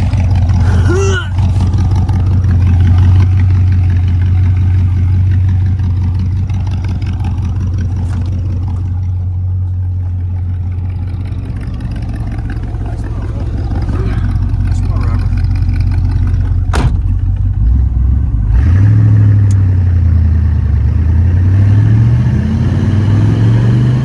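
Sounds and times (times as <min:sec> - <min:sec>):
car engine drone: 0:00.0 - 0:24.0.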